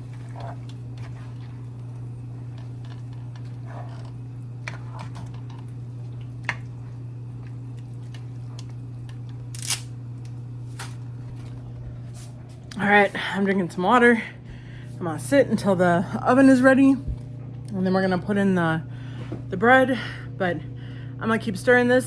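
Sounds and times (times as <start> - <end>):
spoon stirring pasta in pot: 0.0 - 9.5
steady low hum: 0.0 - 22.0.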